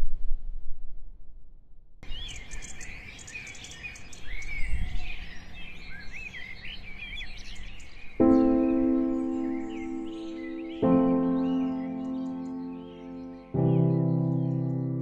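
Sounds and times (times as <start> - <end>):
birds chirping and singing: 2.0 - 15.0
music with held chords: 8.2 - 15.0.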